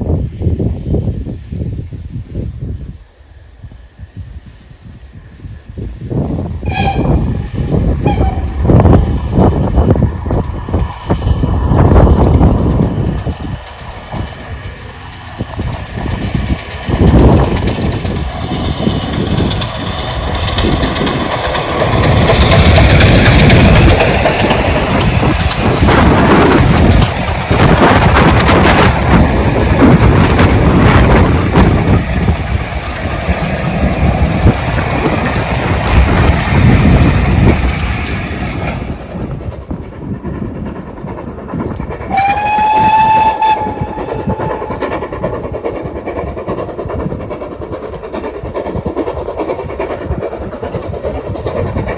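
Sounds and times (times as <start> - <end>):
train wheels clattering on track: 3.6 - 51.9
locomotive whistle: 6.6 - 7.3, 8.0 - 8.7, 42.1 - 44.7.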